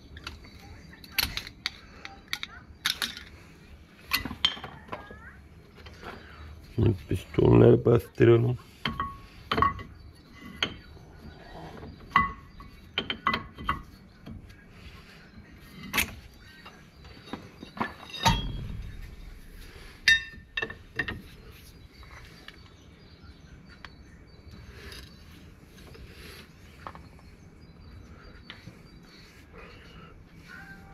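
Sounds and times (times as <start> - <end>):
metal tools clinking: 15.8 - 21.5.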